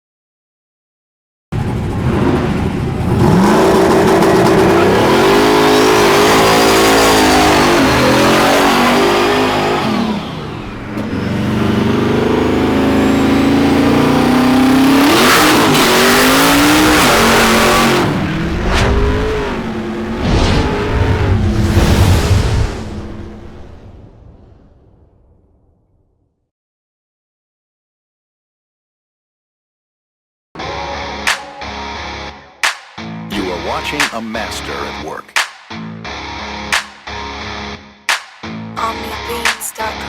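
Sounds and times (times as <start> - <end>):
race car engine revving: 1.6 - 22.0
sharp cracks: 36.7 - 37.1.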